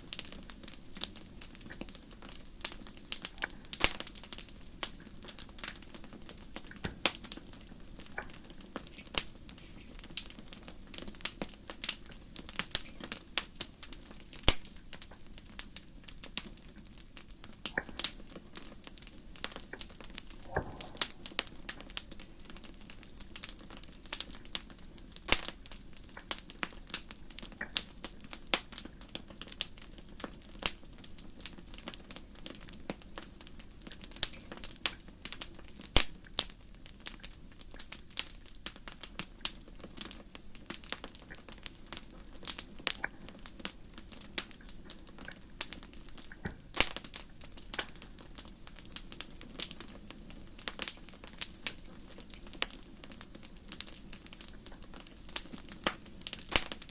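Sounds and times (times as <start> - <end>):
fire crackling: 0.0 - 56.9
low steady rush: 20.2 - 23.3.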